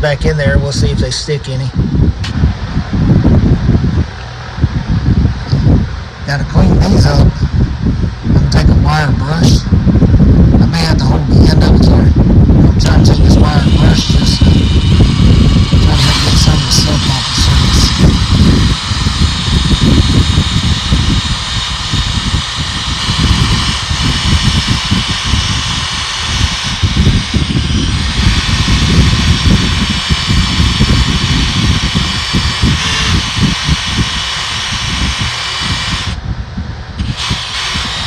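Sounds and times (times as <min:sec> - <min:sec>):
heavy low rumble: 0:00.0 - 0:38.0
wire brush scrubbing metal: 0:13.2 - 0:36.2.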